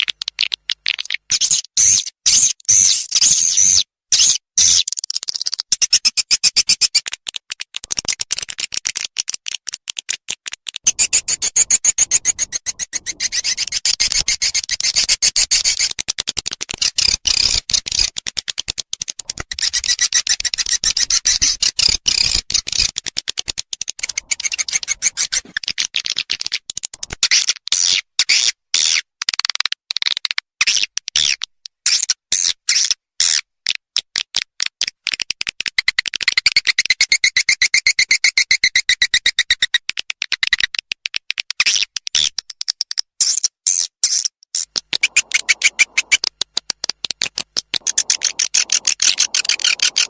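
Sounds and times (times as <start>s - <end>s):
swiftlet chittering chirps: 10.9s - 15.9s, 24.0s - 25.4s, 45.0s - 46.2s, 47.8s - 50.0s.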